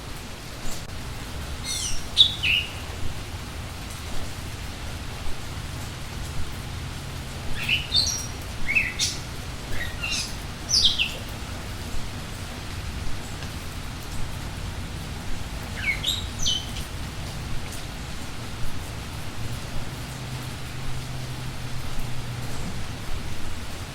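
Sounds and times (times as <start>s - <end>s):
steady rain: 0.0s - 23.9s
songbird chirping: 1.6s - 3.4s, 7.4s - 11.6s, 15.3s - 18.2s.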